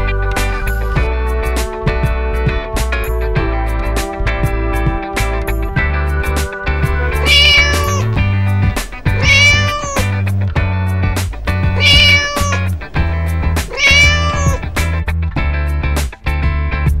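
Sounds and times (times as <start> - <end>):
background music with steady beat: 0.0 - 17.0
cat meowing: 7.1 - 10.3, 11.4 - 15.0.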